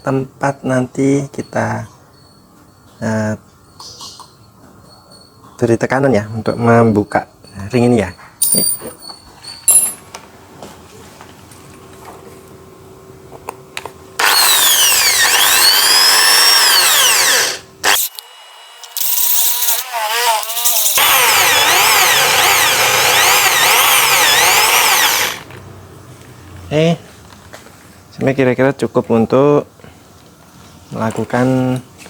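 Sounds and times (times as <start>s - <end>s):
electric drill boring into metal: 14.2s - 25.6s.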